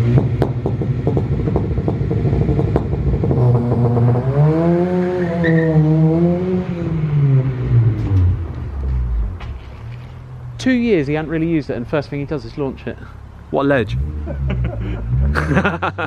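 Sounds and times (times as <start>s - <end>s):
car engine revving hard: 0.0s - 8.4s, 13.7s - 16.0s.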